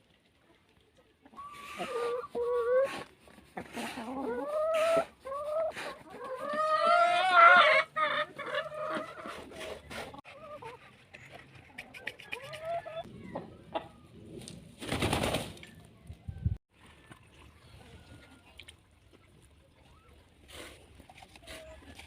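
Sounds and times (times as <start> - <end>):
chickens clucking: 0.4 - 14.1.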